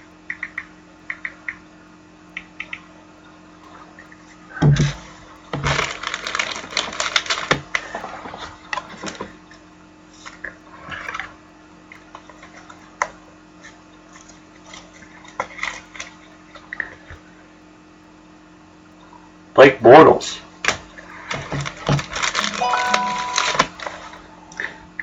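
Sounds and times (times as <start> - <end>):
wrapper crinkling: 5.7 - 7.6, 21.6 - 22.6.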